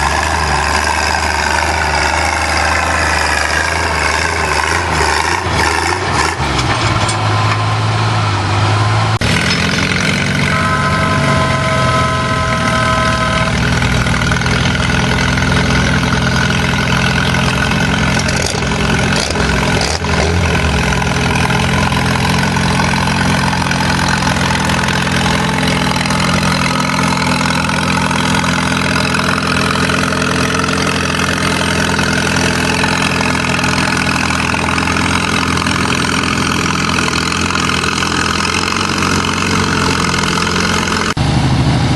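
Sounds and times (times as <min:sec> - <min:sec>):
tractor engine running: 0:00.0 - 0:41.9
steady high tone: 0:10.2 - 0:17.2.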